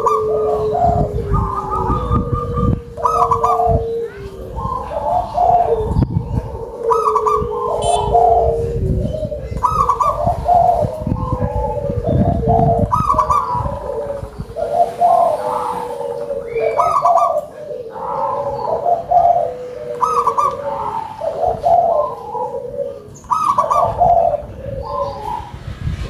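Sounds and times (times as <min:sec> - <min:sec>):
doves cooing: 0:00.0 - 0:26.0.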